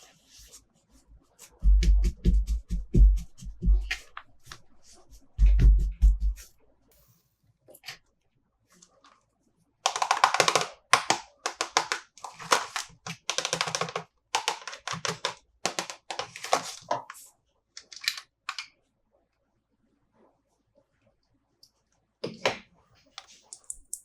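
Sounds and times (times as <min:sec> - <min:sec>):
plastic toy packaging handled: 0:09.9 - 0:17.2.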